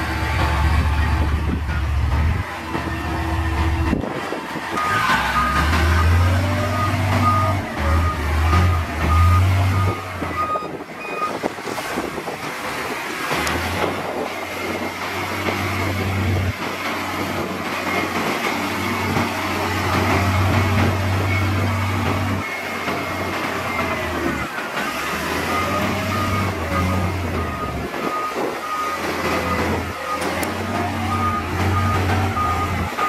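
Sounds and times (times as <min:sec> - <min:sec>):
diesel engine running: 0:00.0 - 0:33.0
reversing alarm beeping: 0:04.8 - 0:11.4, 0:25.4 - 0:33.0.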